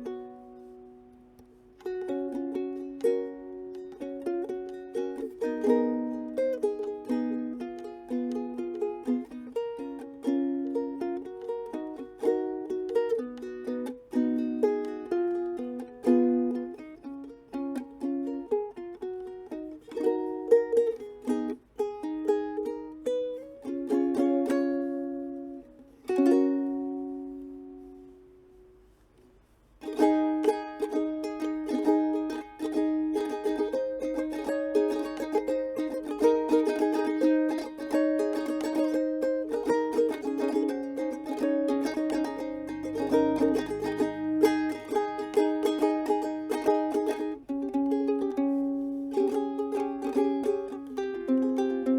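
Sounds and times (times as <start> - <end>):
ukulele melody and chords: 0.0 - 51.9
ukulele strumming: 0.0 - 51.9.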